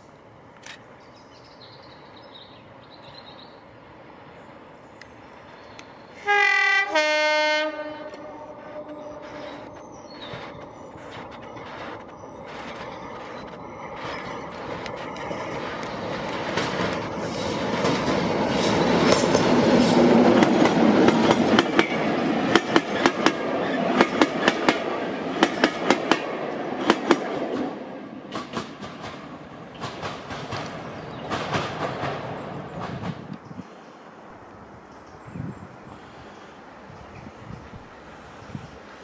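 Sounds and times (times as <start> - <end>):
diesel locomotive engine passing: 0.0 - 39.0
train wheels clickety-clack: 9.2 - 33.5.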